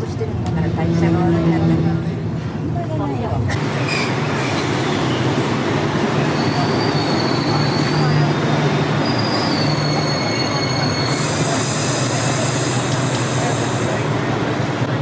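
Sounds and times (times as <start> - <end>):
train running by: 0.0 - 15.0
train wheels squealing: 6.2 - 8.4, 9.0 - 13.6.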